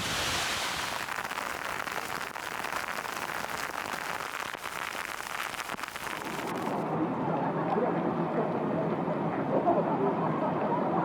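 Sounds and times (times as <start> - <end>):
heavy rain on hard surface: 0.0 - 6.8.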